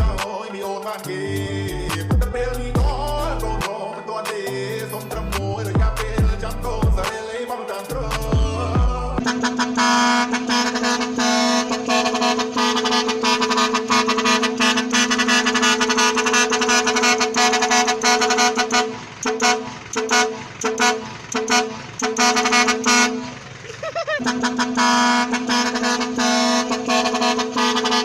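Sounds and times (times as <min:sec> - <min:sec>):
truck horn: 0:00.0 - 0:00.4, 0:07.8 - 0:28.0
short truck horn toots: 0:09.2 - 0:23.4, 0:24.1 - 0:28.0.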